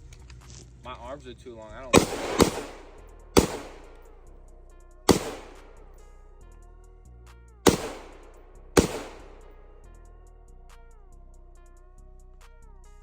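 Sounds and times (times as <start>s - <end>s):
gunshots: 1.9s - 4.3s, 5.1s - 6.0s, 7.7s - 9.9s.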